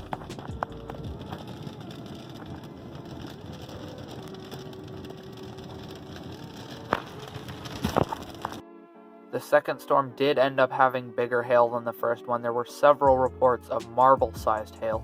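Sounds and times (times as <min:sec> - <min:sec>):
car cabin road noise: 0:00.0 - 0:08.6.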